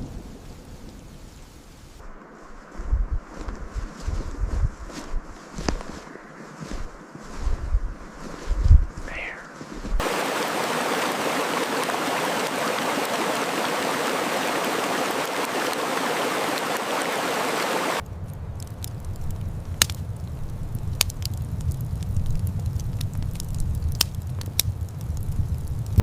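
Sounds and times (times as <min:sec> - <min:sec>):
low rumble with crackles: 0:00.0 - 0:10.2, 0:11.6 - 0:26.0
flowing water rushing: 0:10.0 - 0:18.0.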